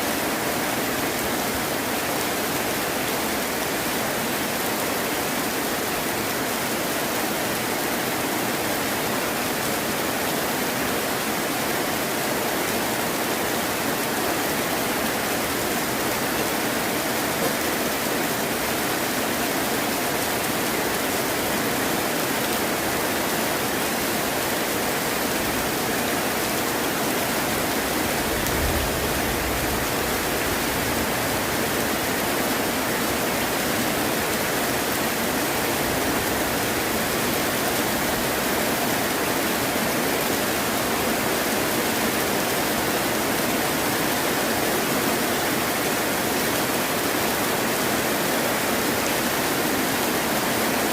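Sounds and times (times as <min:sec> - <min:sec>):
heavy rain falling: 0:00.0 - 0:50.9
distant thunder rumble: 0:27.8 - 0:32.1.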